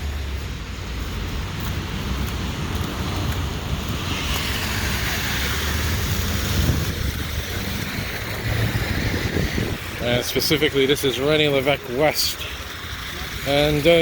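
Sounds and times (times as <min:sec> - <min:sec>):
low traffic rumble: 0:00.0 - 0:14.0
tyres hissing on wet street: 0:00.0 - 0:14.0.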